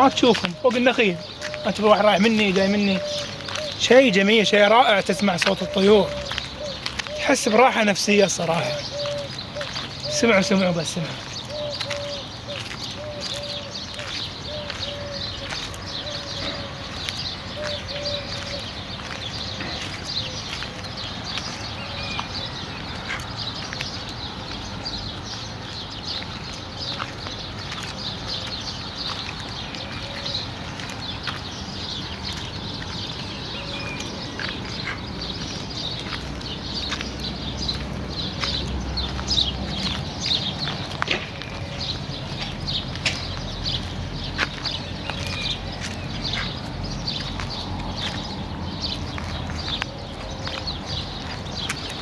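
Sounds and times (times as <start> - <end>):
bird repeating low note: 0.0 - 18.8
farm noise: 0.0 - 52.0
small birds chirping: 0.0 - 52.0
wind: 0.0 - 52.0.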